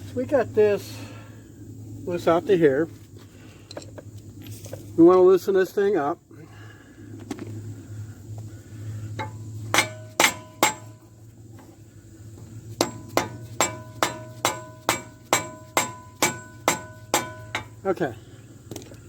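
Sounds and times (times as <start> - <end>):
hammer ringing on steel: 9.2 - 11.0, 12.8 - 17.8.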